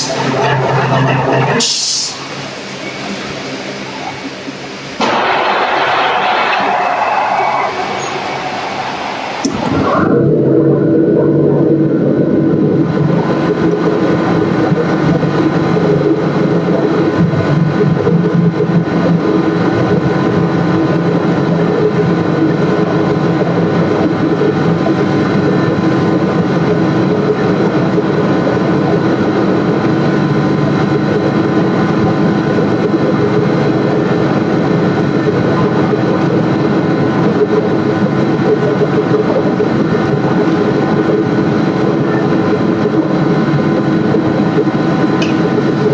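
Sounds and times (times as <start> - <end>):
machine humming loudly: 0.0 - 45.9.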